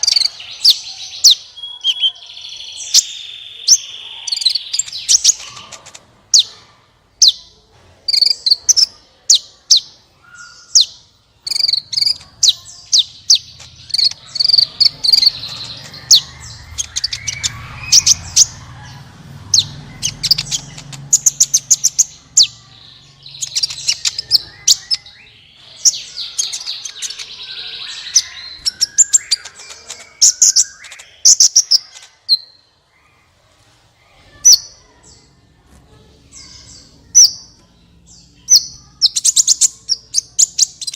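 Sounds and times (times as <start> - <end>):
bird chirps and buzzy trills: 0.0 - 33.3.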